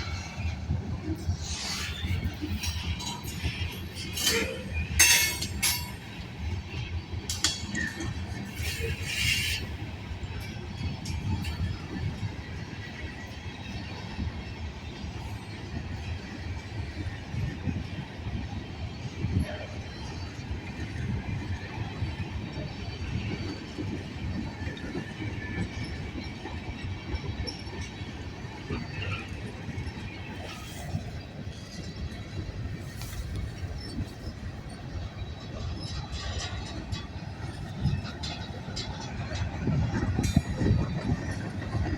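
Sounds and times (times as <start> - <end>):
train wheels rumbling on rail: 0.0 - 41.9
metallic clanks and bangs: 2.7 - 6.2
faint wheel squeal: 8.6 - 9.7.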